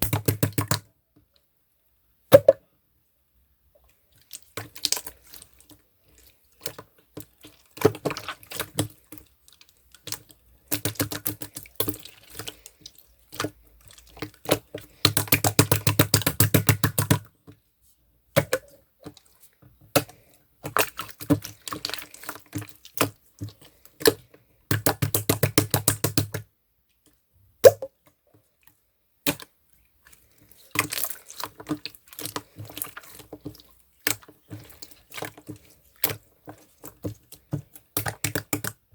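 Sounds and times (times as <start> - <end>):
fast wet clicking: 7.4 - 12.7, 13.3 - 17.3, 20.0 - 26.4, 30.1 - 38.8.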